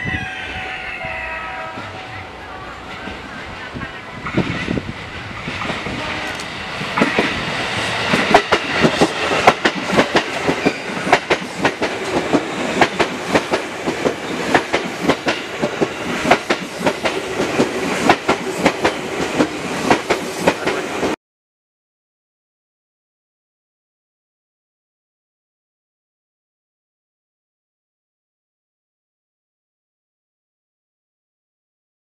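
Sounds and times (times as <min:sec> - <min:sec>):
train wheels clattering over rail joints: 0:05.4 - 0:20.8.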